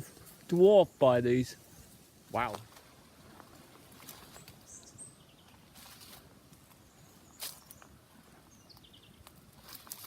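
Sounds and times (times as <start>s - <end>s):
footsteps rustling through dry foliage: 0.0s - 8.6s, 9.2s - 10.0s
faint small birds chirping: 3.9s - 10.0s.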